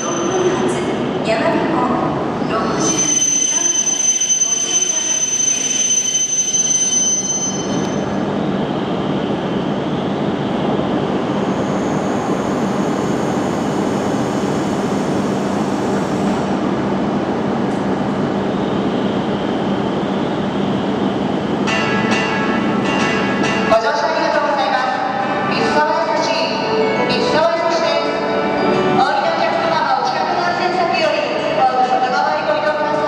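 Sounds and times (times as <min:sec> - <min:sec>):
train brake squeal: 0:02.6 - 0:08.2
train rumble with low hum: 0:06.6 - 0:33.0.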